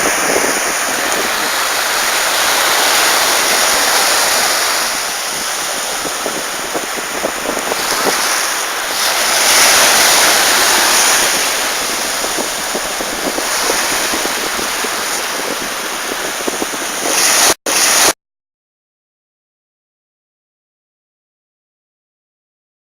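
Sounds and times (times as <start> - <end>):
wind on microphone: 0.0 - 18.1
sea surf washing onto beach: 0.0 - 18.2.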